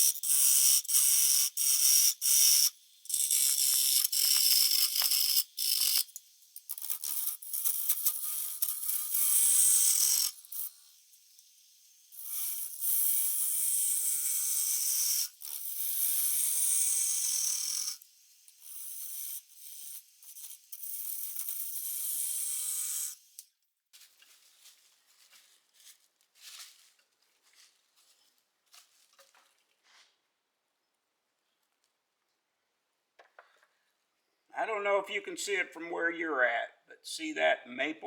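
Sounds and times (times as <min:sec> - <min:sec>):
faint scrapes and ticks: 0:23.4 - 0:30.2.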